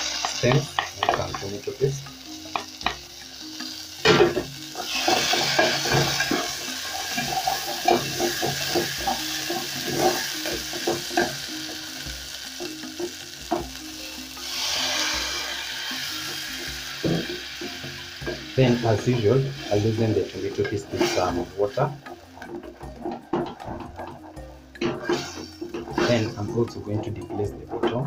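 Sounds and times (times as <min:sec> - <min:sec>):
vegetables sizzling in a pot: 0:00.0 - 0:28.0
wooden spoon scraping pot: 0:19.0 - 0:28.0.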